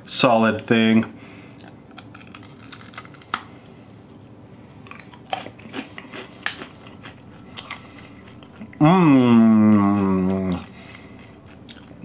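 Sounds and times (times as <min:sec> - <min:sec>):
person crunching a hard snack: 0:01.5 - 0:03.6, 0:04.8 - 0:08.8, 0:09.8 - 0:12.0.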